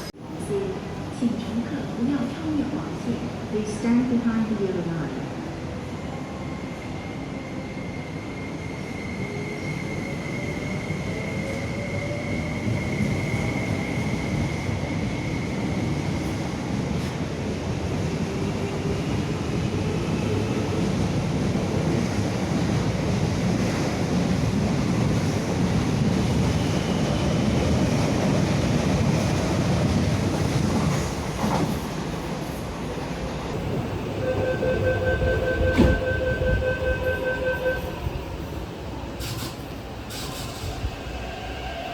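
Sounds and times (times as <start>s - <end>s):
train wheels rumbling on track: 11.4s - 41.9s.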